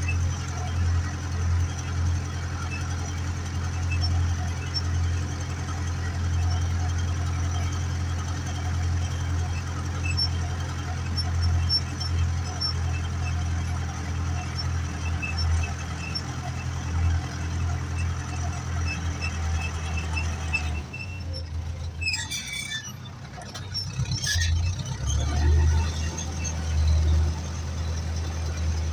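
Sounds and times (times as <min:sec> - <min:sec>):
metallic squeaks and rattles: 0:00.0 - 0:28.9
tractor diesel engine droning: 0:00.0 - 0:28.9.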